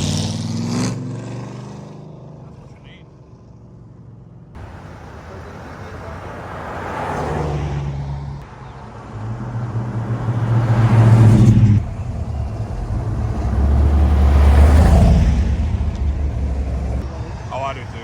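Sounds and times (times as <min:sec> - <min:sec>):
car engine accelerating: 0:04.6 - 0:18.0
deeper car engine building up: 0:08.4 - 0:18.0.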